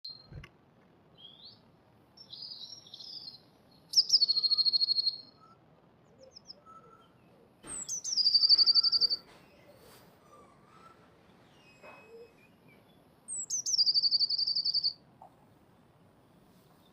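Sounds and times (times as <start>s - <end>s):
soft bird chirps: 0.0s - 0.4s, 1.1s - 16.9s
blue tit singing trill: 2.2s - 5.6s, 6.2s - 10.0s, 11.4s - 15.0s.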